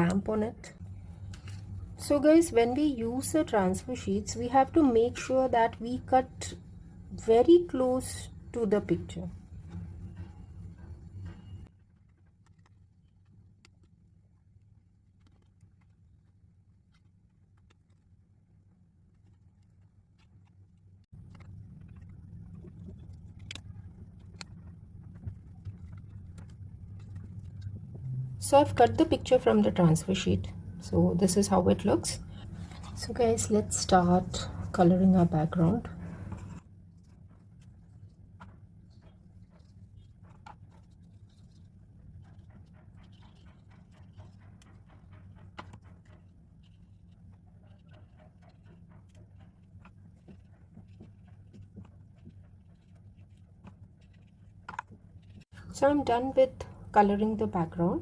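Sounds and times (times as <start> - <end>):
steady low hum: 16.3 - 58.0.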